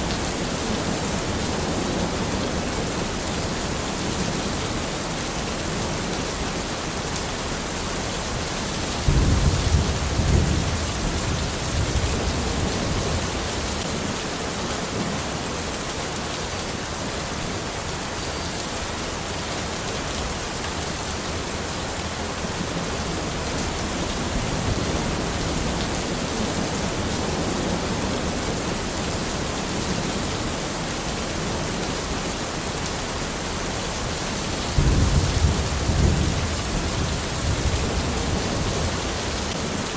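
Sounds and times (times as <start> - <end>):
steady rain in a forest: 0.0 - 39.9
low rumble of thunder: 8.8 - 14.0, 34.5 - 39.8.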